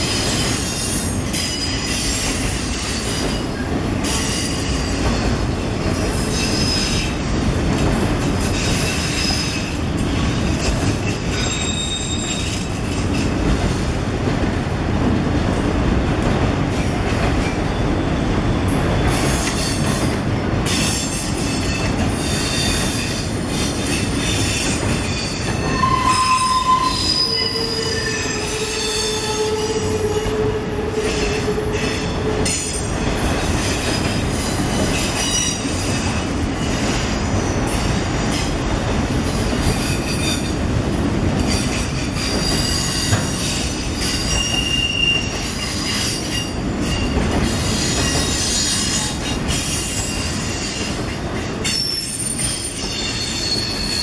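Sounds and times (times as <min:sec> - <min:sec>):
steel wheels rumbling on rail: 0:00.0 - 0:54.0
high-pitched wheel squeal: 0:11.5 - 0:12.6, 0:23.9 - 0:32.6, 0:41.5 - 0:49.0, 0:51.7 - 0:54.0
lower squealing tone: 0:25.1 - 0:32.2.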